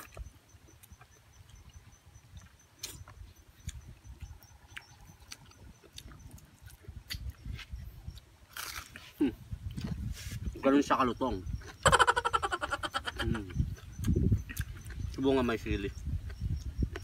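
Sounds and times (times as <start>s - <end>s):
insect ticking: 0.0s - 8.8s, 9.6s - 17.0s
crunching and chewing crispy food: 0.0s - 10.2s
wind rumble on microphone: 0.0s - 17.0s.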